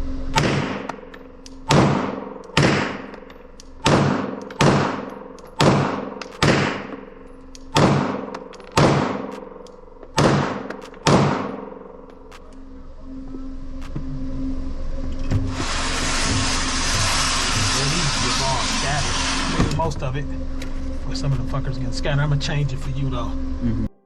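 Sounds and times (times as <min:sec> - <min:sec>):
pistol shots echoing: 0:00.4 - 0:01.0, 0:01.6 - 0:12.1.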